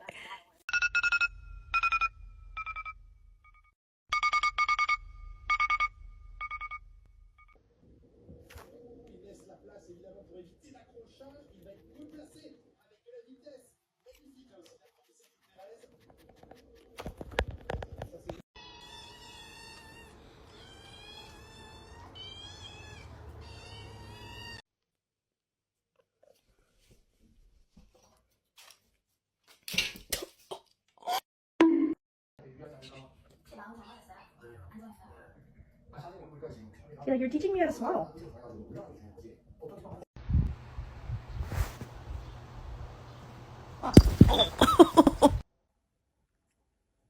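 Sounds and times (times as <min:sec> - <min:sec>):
kitten mewing: 0:43.8 - 0:45.4.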